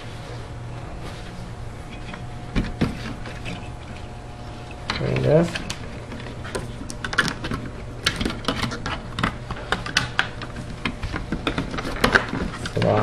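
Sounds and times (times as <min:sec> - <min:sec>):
plastic parts clicking and rattling: 0:07.0 - 0:13.0.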